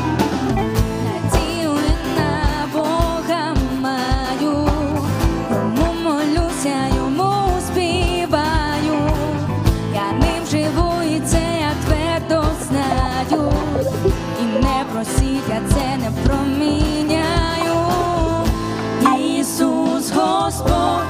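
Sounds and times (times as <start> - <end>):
guitar: 0.0 - 21.0
live worship band: 0.0 - 21.0
person singing: 13.2 - 21.0
steady drum beat: 13.4 - 15.8.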